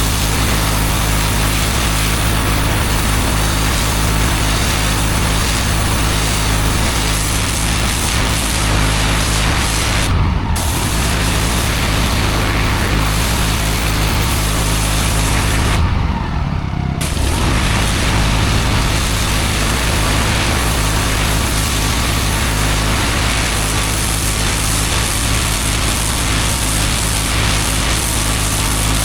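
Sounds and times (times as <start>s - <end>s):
water jet hissing on paving: 0.0s - 16.1s, 17.0s - 29.0s
pressure washer engine running: 0.0s - 29.0s.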